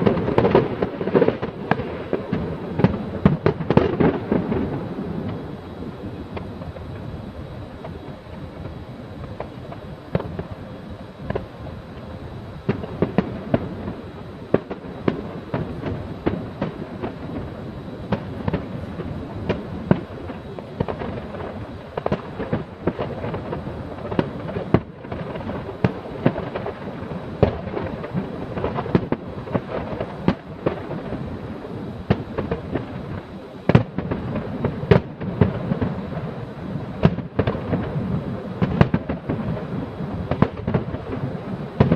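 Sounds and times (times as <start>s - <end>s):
distant fireworks rumbling: 0.0s - 41.9s
fireworks bangs and crackles: 0.0s - 41.9s.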